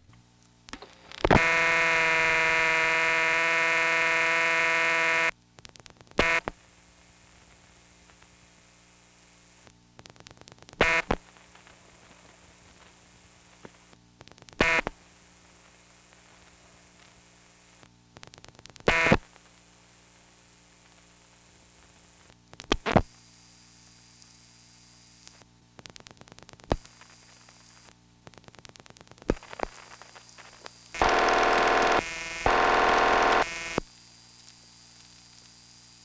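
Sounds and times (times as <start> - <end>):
faint telephone line hum: 0.0 - 5.4, 25.2 - 33.9
buzzy dial tone: 0.8 - 5.3, 6.2 - 6.6, 10.8 - 11.2, 14.6 - 15.0, 18.8 - 19.3, 26.7 - 33.9.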